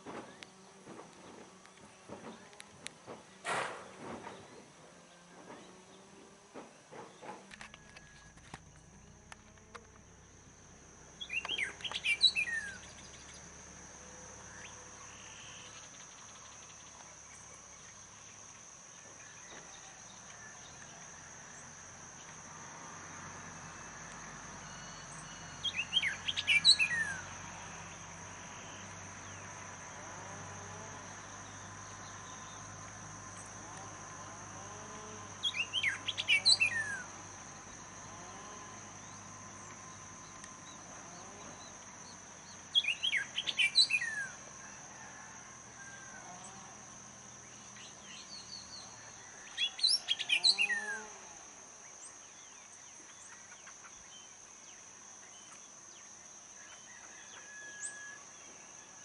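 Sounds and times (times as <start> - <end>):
high-pitched insect trill: 7.5 - 59.0
songbird whistling: 11.2 - 12.9.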